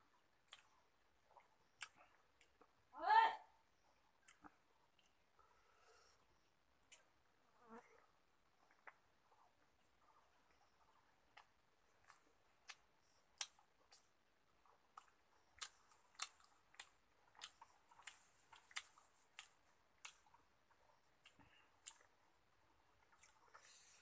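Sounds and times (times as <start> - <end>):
chewing with wet mouth clicks: 0.4 - 2.7, 8.6 - 22.2, 23.0 - 23.7.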